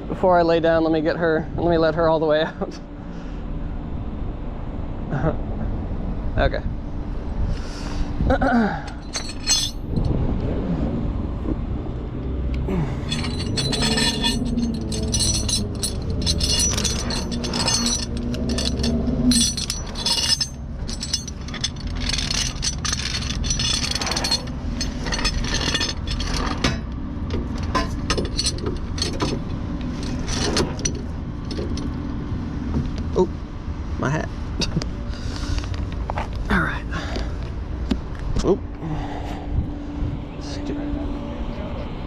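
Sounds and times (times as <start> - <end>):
steady low hum: 0.0 - 42.0
metal chain clinking: 8.8 - 10.1, 12.7 - 32.0.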